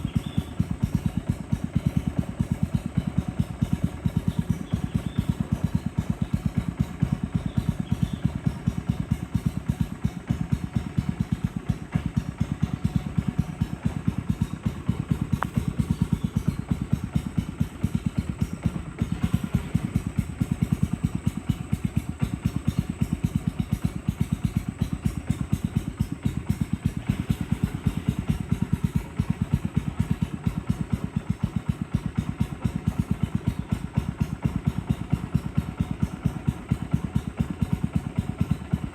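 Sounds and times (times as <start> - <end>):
boat engine thumping: 0.0 - 38.9.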